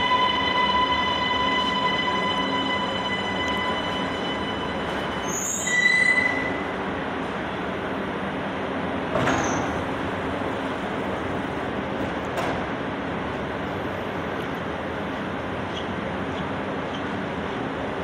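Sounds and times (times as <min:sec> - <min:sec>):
subway train rail rumble: 0:00.0 - 0:18.0
high wheel squeal: 0:00.7 - 0:06.7.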